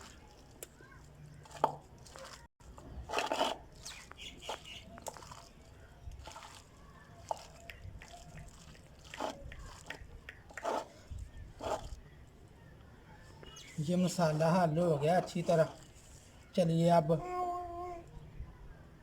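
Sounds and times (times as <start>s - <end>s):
hands squelching wet batter: 0.0s - 12.1s.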